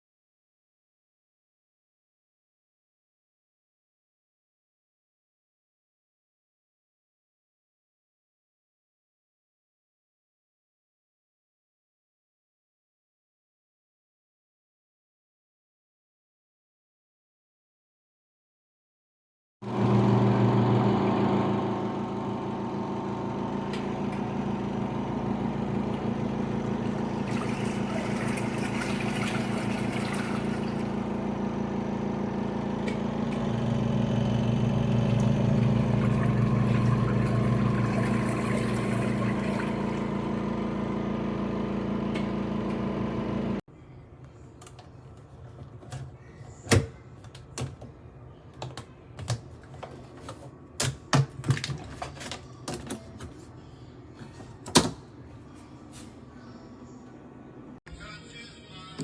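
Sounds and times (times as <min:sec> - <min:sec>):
motor humming: 0:19.7 - 0:43.6.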